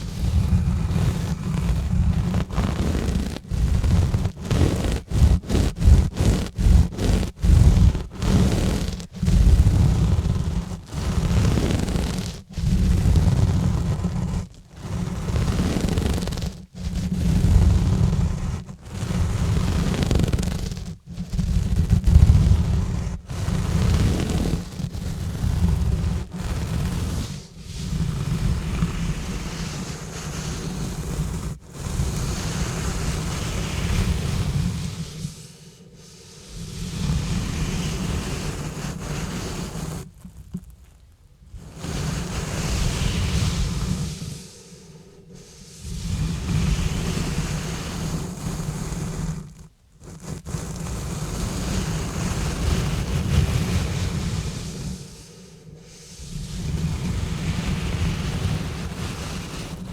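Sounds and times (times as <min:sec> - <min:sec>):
gloves scrubbing on microphone: 0:00.0 - 0:59.9.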